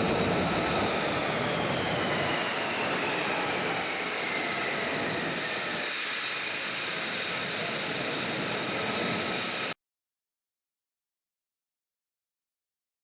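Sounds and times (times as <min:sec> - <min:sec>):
jet engine whine: 0:00.0 - 0:09.8.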